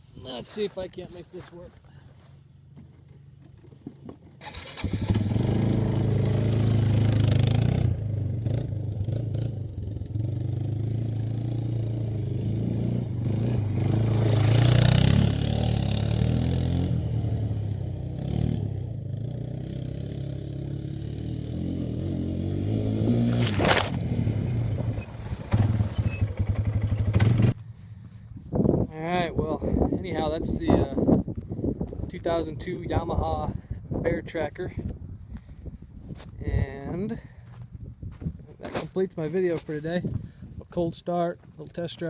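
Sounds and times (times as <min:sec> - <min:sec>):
quad bike engine running: 0:04.5 - 0:27.6.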